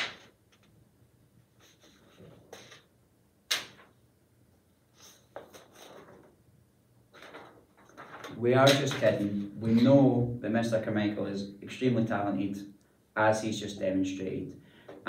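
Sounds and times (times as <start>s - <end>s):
cards slapping down: 0.0s - 0.3s, 3.5s - 3.9s, 8.1s - 9.3s
paper cards rustling: 5.0s - 6.3s, 7.1s - 9.5s.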